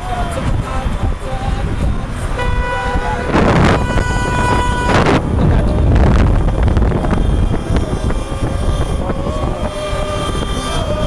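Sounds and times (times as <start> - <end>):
street noise with engines: 0.0 - 11.0
wind buffeting microphone: 0.0 - 11.0
car horn: 2.2 - 8.9.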